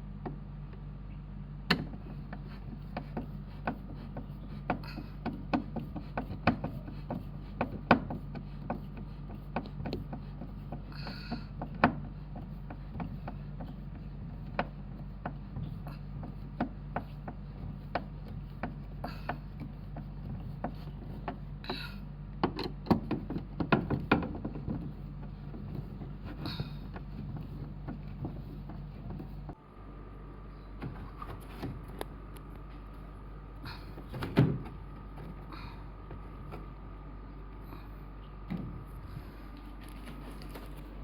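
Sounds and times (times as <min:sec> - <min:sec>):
steady low hum: 0:00.0 - 0:41.0
sharp clicks and knocks: 0:01.7 - 0:21.8, 0:22.4 - 0:29.6.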